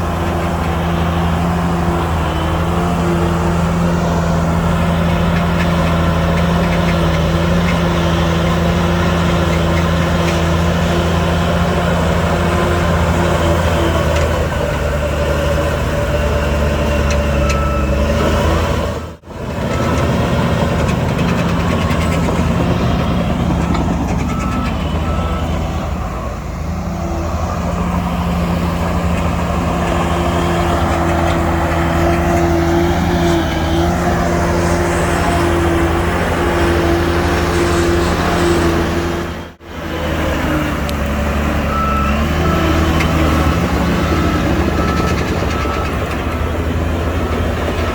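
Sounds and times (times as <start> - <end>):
heavy diesel machinery running: 0.0 - 47.9
reversing beeper: 16.2 - 18.6, 19.6 - 39.5, 41.6 - 47.7.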